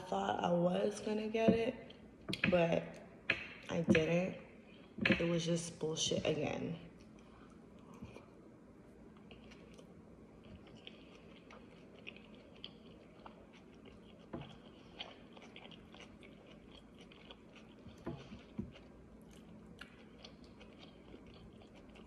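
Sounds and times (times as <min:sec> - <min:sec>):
faint chewing: 0:06.9 - 0:08.4, 0:09.0 - 0:22.0.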